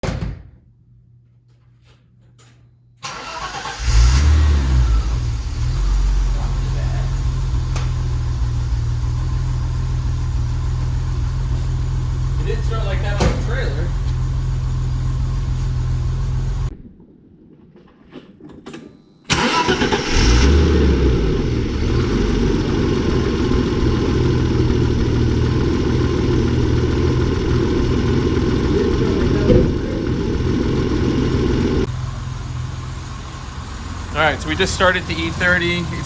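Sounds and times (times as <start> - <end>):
car engine starting and idling: 3.0 - 16.7, 19.3 - 36.0
steady low rumble: 4.6 - 18.0, 20.6 - 36.0.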